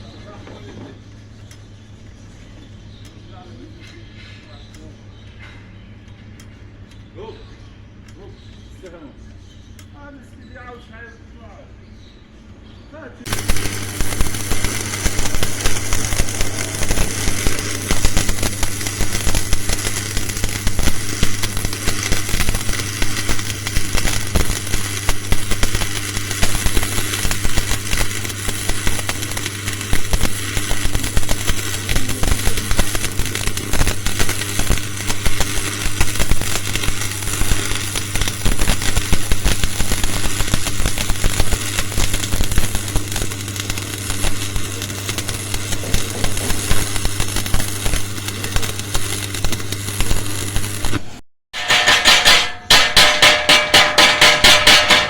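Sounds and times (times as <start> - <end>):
steady low hum: 11.2 - 50.8
welding arc crackling: 13.3 - 55.0.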